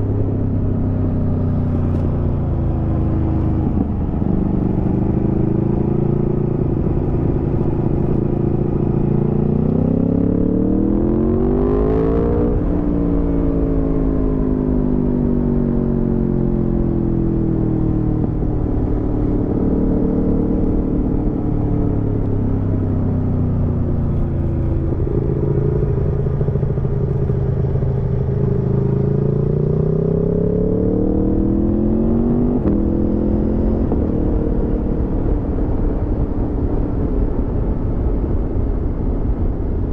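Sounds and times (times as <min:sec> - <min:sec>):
motorcycle engine under way: 0:17.0 - 0:37.5.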